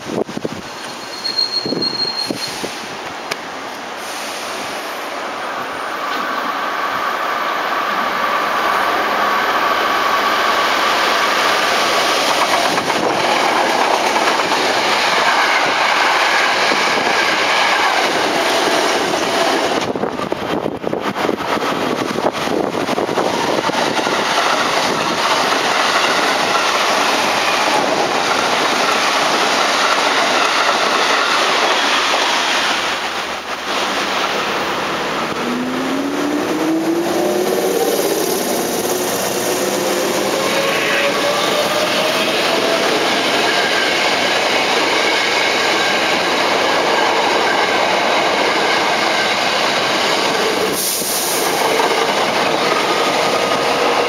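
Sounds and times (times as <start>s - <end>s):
train wheels clattering on rails: 9.6s - 35.4s, 36.8s - 54.0s
faint train whine: 31.6s - 46.4s.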